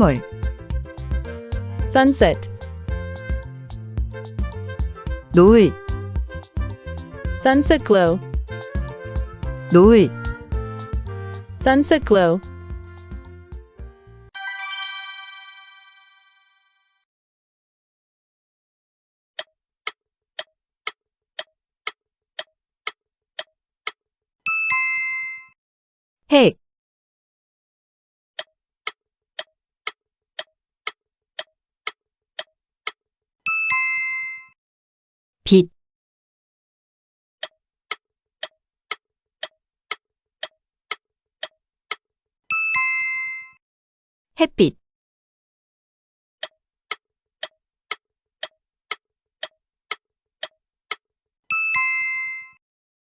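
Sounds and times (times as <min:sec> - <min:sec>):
person speaking: 0:00.0 - 0:03.3, 0:05.3 - 0:05.9, 0:07.0 - 0:09.0, 0:09.7 - 0:10.2, 0:11.4 - 0:12.6
clock ticking: 0:00.0 - 0:11.1
bright chime strikes: 0:14.4 - 0:16.5.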